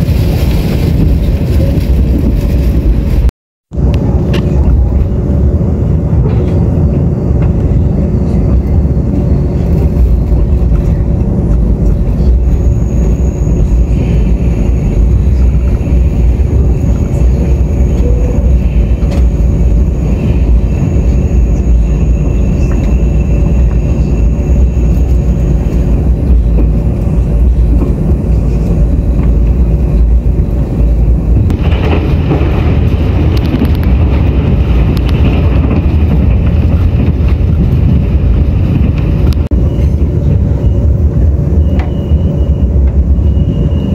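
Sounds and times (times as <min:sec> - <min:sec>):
harsh rushing noise: 0:00.0 - 0:43.9
low hum: 0:00.0 - 0:43.9
train running rumble: 0:00.0 - 0:43.9.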